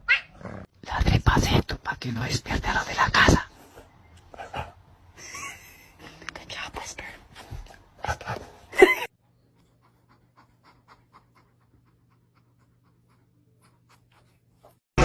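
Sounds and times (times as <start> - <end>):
heavy panting: 7.4 - 14.8.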